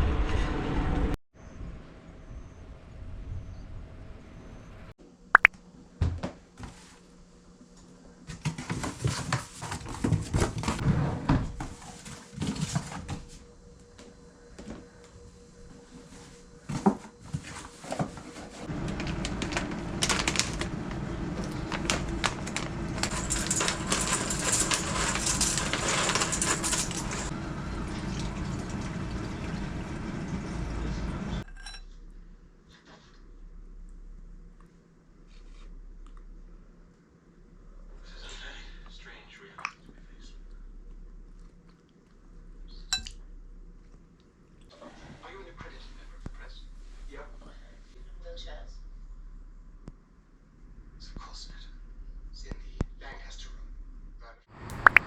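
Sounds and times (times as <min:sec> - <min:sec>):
dishes and utensils clinking: 0:22.1 - 0:27.4.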